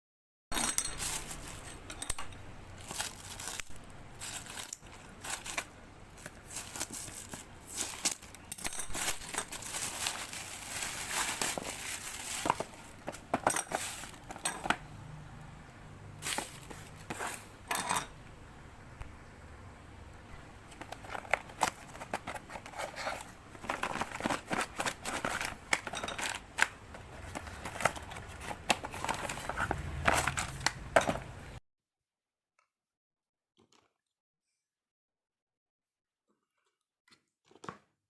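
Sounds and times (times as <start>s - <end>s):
packaging rustling and crinkling: 0.9s - 1.8s, 2.7s - 14.6s, 16.2s - 17.5s, 20.7s - 31.3s.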